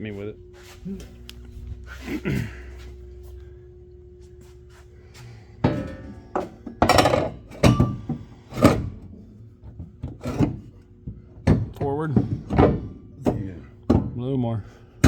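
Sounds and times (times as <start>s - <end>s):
metal frame clanking and knocking: 5.6s - 8.9s.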